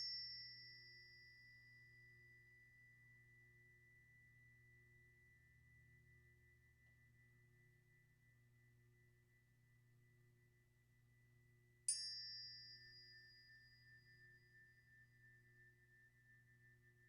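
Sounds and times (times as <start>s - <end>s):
high metallic ringing tone: 0.0s - 9.6s, 11.9s - 17.0s.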